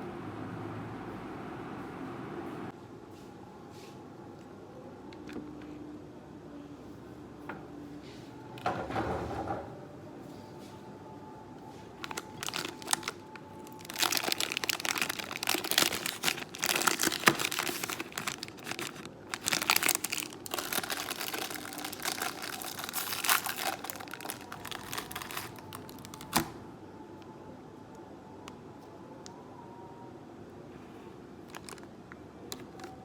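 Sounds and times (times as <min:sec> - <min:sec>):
packaging crinkling and rustling: 0:11.9 - 0:26.6, 0:31.4 - 0:33.0.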